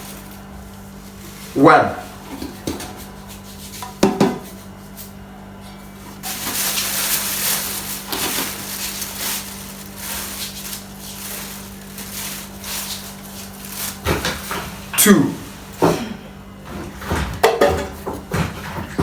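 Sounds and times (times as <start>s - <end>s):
flour rustling hiss: 0.0s - 2.2s, 6.2s - 15.8s
cup knocking: 3.8s - 4.4s.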